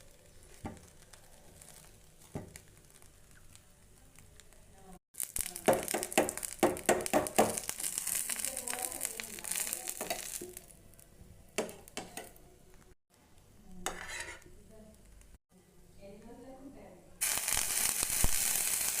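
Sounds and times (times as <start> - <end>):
food sizzling in a pan: 0.0 - 12.9, 17.2 - 19.0
spatula knocking and scraping pan: 5.6 - 7.6, 9.9 - 10.6, 11.6 - 12.4, 13.8 - 14.5.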